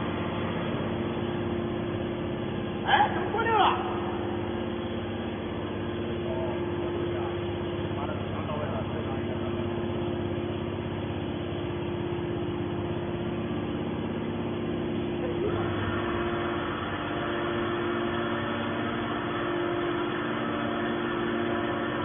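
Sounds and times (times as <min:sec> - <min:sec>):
harsh bright machine noise: 0:00.0 - 0:22.0
scrap metal baler hum: 0:15.2 - 0:22.0.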